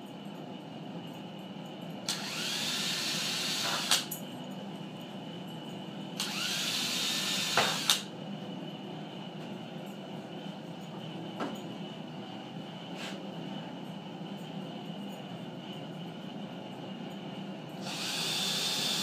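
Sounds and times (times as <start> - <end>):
power drill whining: 2.1 - 4.0, 6.2 - 8.0, 17.8 - 19.0.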